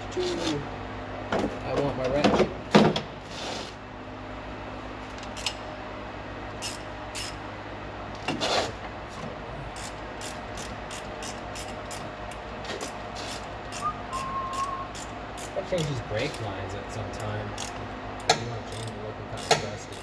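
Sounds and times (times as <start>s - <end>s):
ratchet wrench clicking: 6.6s - 7.4s, 9.8s - 16.5s, 17.2s - 20.0s.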